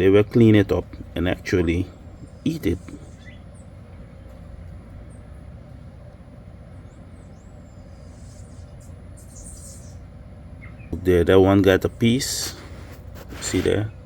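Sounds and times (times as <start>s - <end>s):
low outdoor rumble: 0.0s - 14.0s
faint high chirps: 6.7s - 10.0s.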